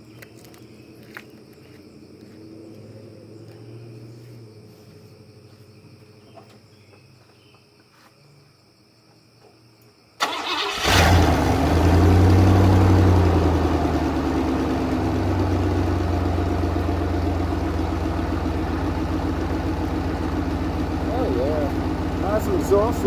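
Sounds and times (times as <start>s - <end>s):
engine starter cranking: 10.2s - 11.7s
car engine idling: 10.2s - 23.0s.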